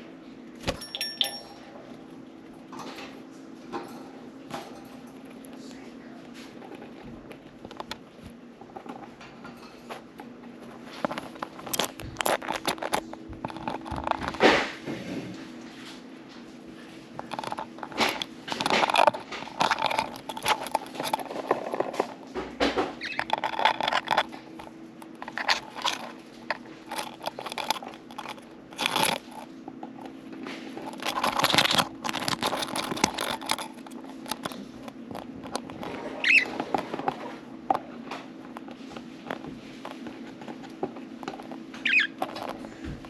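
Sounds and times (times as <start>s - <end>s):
steady low hum: 0.0s - 43.0s
small clicks and scratches: 4.6s - 15.2s, 17.1s - 43.0s
budgerigars chattering and chirping: 41.8s - 42.1s.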